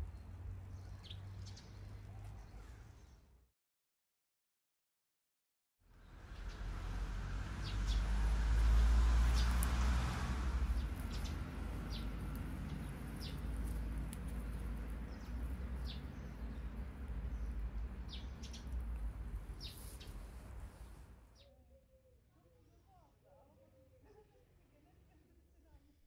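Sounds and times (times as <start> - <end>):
small birds chirping: 0.0 - 3.4, 5.9 - 21.6.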